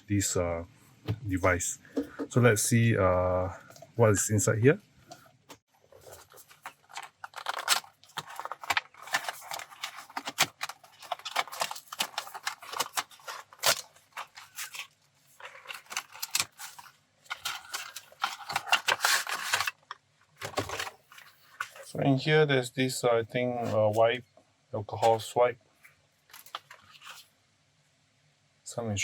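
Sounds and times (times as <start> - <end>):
cardboard box rustling: 5.8 - 19.8.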